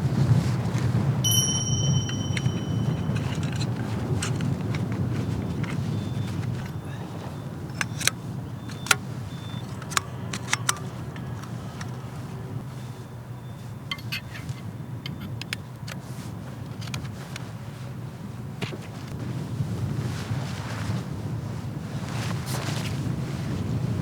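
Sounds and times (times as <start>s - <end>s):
wind rumbling in snowstorm: 0.0s - 1.2s, 1.9s - 13.9s, 16.0s - 24.0s
light metallic clinks: 1.2s - 4.4s.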